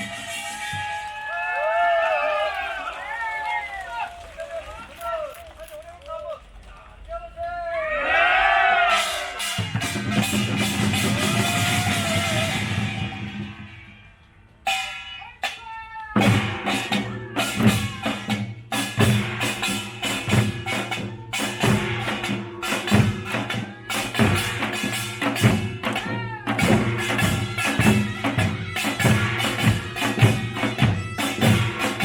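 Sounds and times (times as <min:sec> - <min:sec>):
fast drum strokes: 0:00.0 - 0:01.4, 0:08.9 - 0:15.6, 0:16.2 - 0:32.0.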